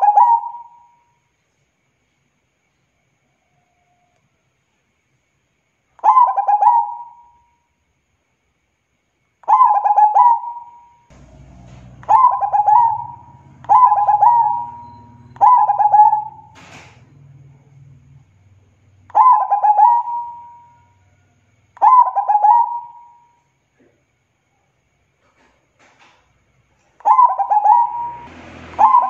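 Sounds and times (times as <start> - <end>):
dove cooing: 0.0 - 0.8, 6.0 - 7.4, 9.5 - 16.8, 19.1 - 23.2, 27.0 - 29.0
faint low hum: 10.6 - 27.2.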